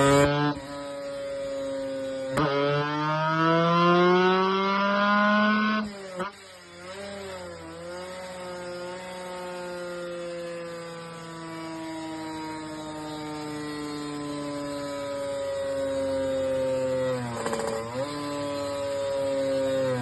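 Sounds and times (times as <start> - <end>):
motorcycle engine at high revs: 0.0 - 20.0.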